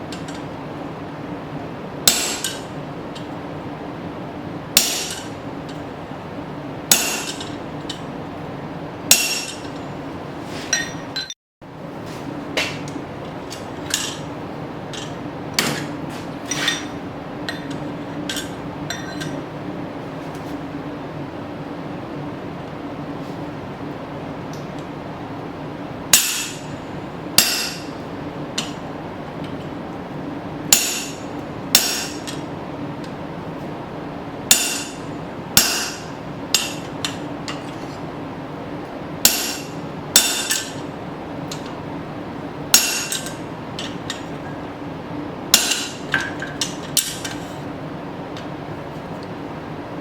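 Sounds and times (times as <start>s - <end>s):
steady low hum: 0.0s - 50.0s
hammer striking chisel on steel: 2.1s - 2.7s, 4.8s - 5.3s, 6.9s - 7.6s, 9.1s - 9.7s, 26.2s - 26.7s, 27.4s - 27.9s, 30.7s - 31.2s, 31.8s - 32.4s, 34.5s - 35.0s, 35.6s - 36.9s, 39.3s - 40.8s, 42.8s - 44.2s, 45.6s - 47.4s.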